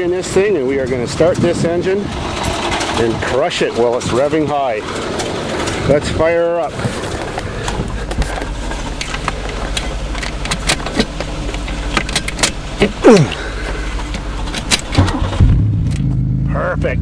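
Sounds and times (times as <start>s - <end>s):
car engine cranking and starting: 0.0s - 17.0s
clicks and clatter: 2.1s - 6.0s, 7.1s - 16.1s.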